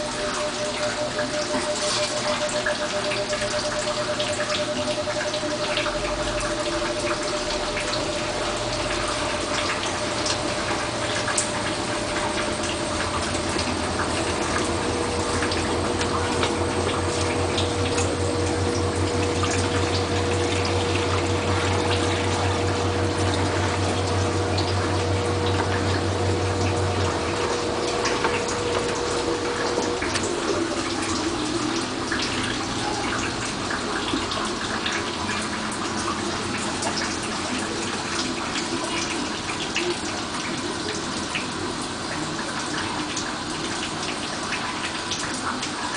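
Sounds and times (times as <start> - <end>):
high steady tone: 0.0 - 32.0
steady machine hum: 0.0 - 45.9
water rushing through washing machine: 0.0 - 45.9.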